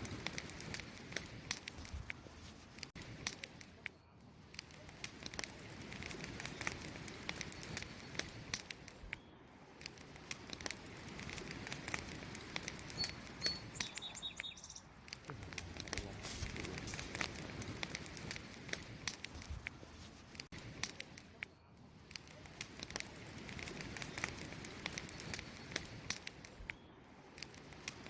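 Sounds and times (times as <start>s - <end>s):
campfire crackling and popping: 0.0s - 28.0s
hiss of burning: 0.0s - 28.0s
high bird chirps: 12.9s - 15.0s.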